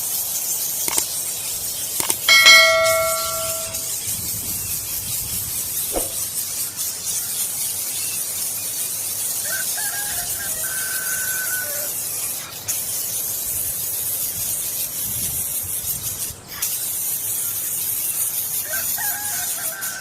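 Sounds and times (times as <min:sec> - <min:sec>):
rooster crowing: 0:09.5 - 0:11.9.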